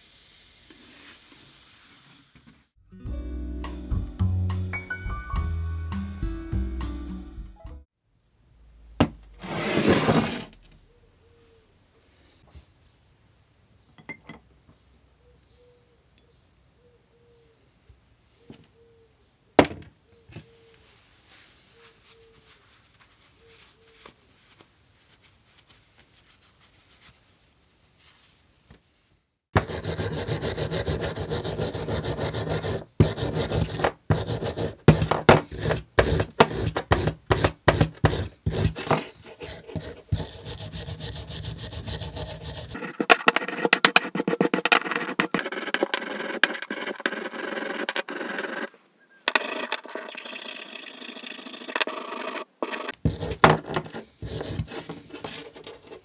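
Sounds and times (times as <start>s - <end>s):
abrasive rubbing and scraping on metal: 42.7s - 52.9s.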